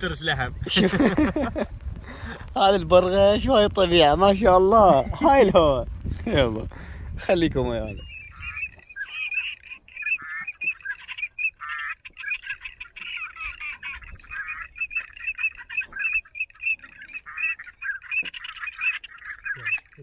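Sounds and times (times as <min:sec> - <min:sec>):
waterfowl calling: 0:06.6 - 0:20.0.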